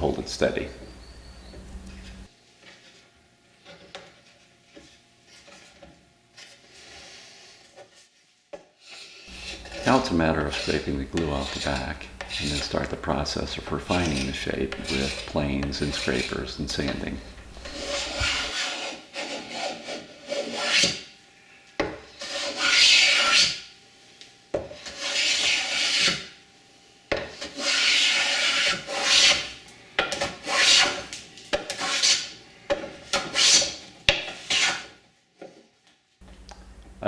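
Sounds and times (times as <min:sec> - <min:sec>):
scraper shaving wood: 0:09.0 - 0:21.0, 0:24.8 - 0:26.2, 0:27.4 - 0:29.5.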